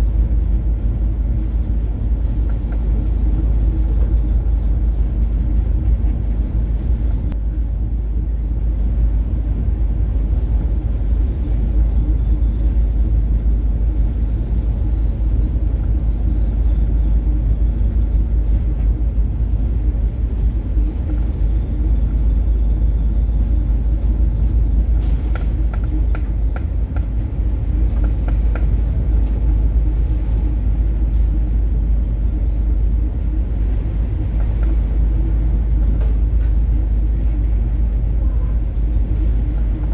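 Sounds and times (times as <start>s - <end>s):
deep ship engine rumble: 0.0s - 39.9s
light rattling ticks: 24.8s - 29.5s.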